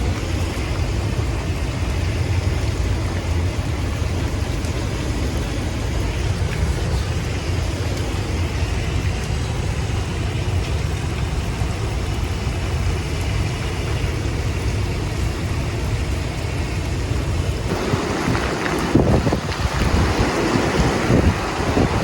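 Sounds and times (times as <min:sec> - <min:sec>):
strong wind roaring: 0:15.0 - 0:22.0
wind buffeting microphone: 0:15.2 - 0:22.0.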